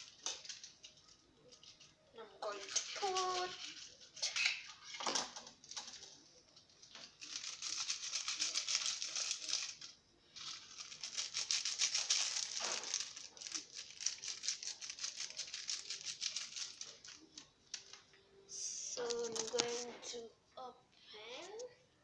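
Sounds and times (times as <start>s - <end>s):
plastic sachets crinkling and tearing: 7.2s - 18.0s.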